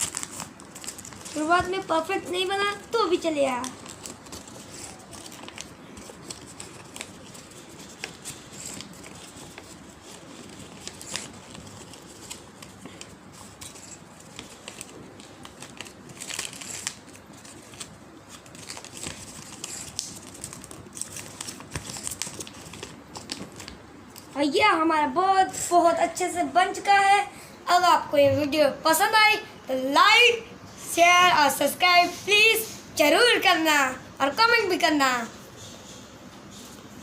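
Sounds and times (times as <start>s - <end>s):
paper rustling and crinkling: 0.0s - 24.4s.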